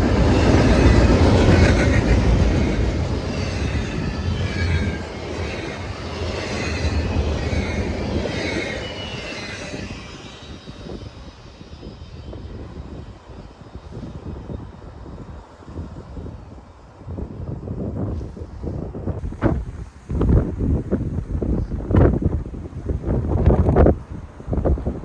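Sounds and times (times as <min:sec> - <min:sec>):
wheels squealing: 0:00.0 - 0:13.4
train rumbling past: 0:00.0 - 0:25.0.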